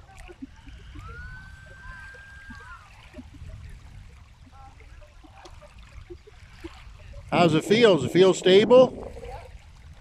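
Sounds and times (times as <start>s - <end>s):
light water sounds of kayak: 0.0s - 10.0s
whistled tone: 0.9s - 2.9s
steady low rumble: 7.1s - 10.0s.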